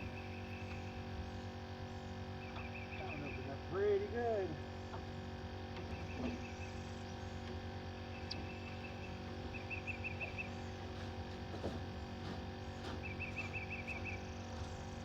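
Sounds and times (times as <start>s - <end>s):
steady low hum: 0.0s - 15.0s
bird chirping: 8.1s - 10.7s, 13.0s - 14.3s.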